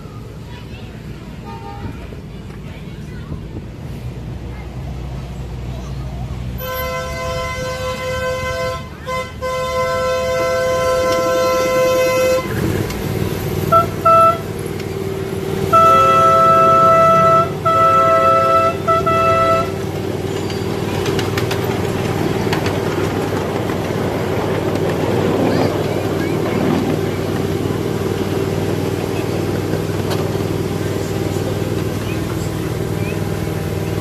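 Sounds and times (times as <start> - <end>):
train rumbling on track: 0.0 - 34.0
train horn blasts: 6.6 - 12.7, 13.6 - 14.6, 15.6 - 20.0.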